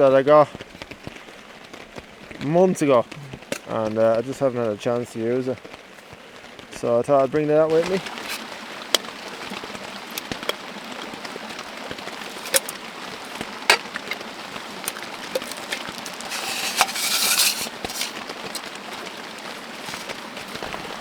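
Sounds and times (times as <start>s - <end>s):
rain patter: 0.0s - 21.0s
metal cookware clinking: 7.8s - 18.7s.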